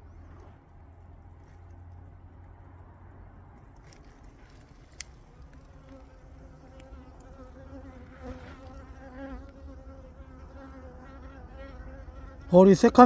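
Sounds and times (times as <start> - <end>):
bees humming at hive: 5.2 - 13.0.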